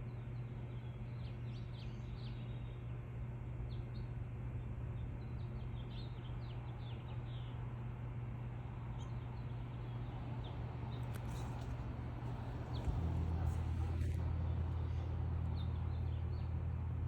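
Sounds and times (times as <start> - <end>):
steady low hum: 0.0 - 17.0
birds chirping: 9.0 - 14.2.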